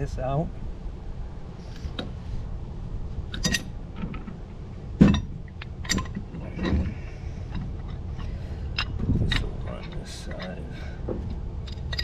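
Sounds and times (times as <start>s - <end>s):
metal clinks and knocks: 3.3s - 12.0s.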